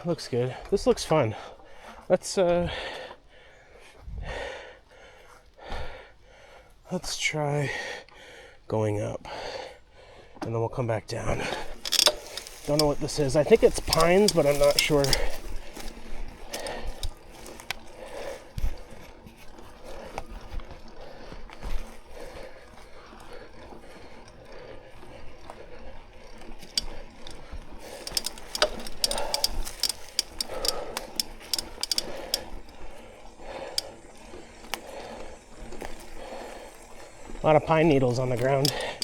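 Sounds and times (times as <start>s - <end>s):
bike chain and freehub clicking: 11.3s - 20.1s, 20.7s - 39.0s
bike rattling: 11.3s - 20.1s, 20.7s - 39.0s.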